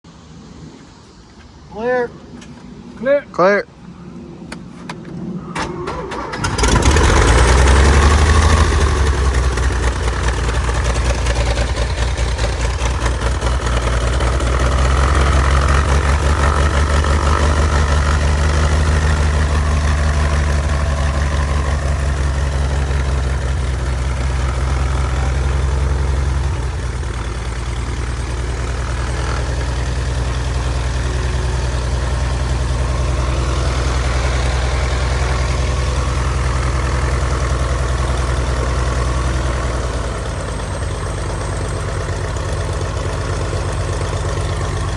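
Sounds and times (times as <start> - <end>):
aircraft engine running: 0.0 - 44.9
starter cranking engine: 5.5 - 40.1.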